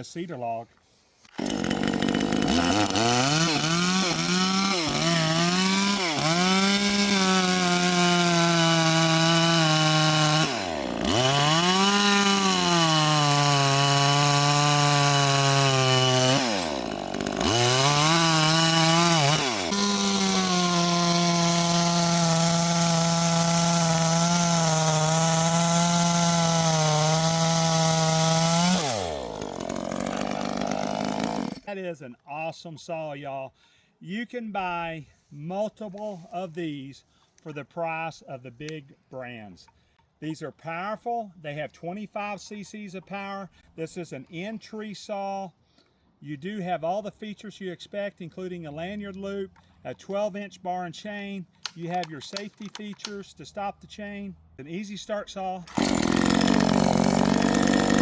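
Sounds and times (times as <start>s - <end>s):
chainsaw cutting log at high revs: 1.3s - 31.7s, 55.6s - 58.0s.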